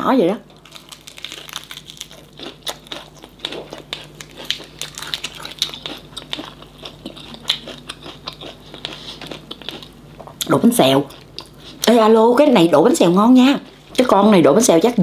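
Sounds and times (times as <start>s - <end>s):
person chewing crunchy food: 0.4s - 12.0s.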